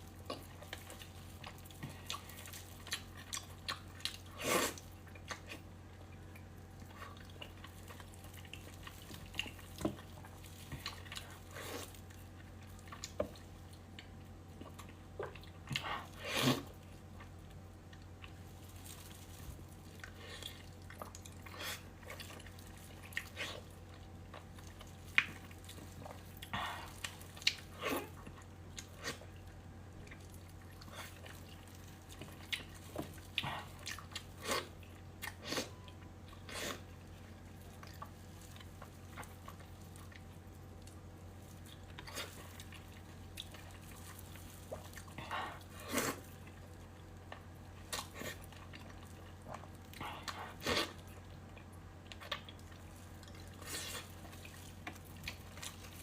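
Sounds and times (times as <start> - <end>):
steady low hum: 0.0 - 56.0
person chewing and slurping: 30.5 - 37.0, 47.9 - 56.0.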